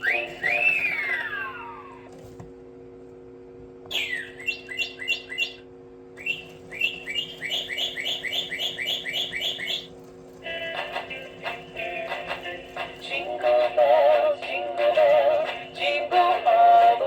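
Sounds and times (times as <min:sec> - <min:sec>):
toy bird chirping: 0:00.0 - 0:01.8, 0:03.9 - 0:05.6, 0:06.2 - 0:09.9
falling whistle: 0:00.0 - 0:02.0, 0:06.2 - 0:09.9.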